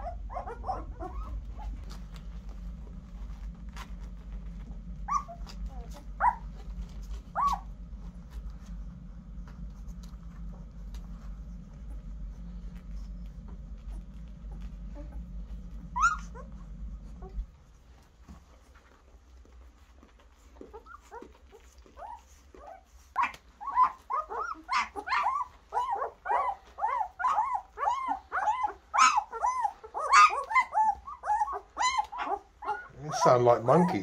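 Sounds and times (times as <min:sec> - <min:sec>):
puppies whining and squealing: 0:00.0 - 0:08.8, 0:09.5 - 0:34.0.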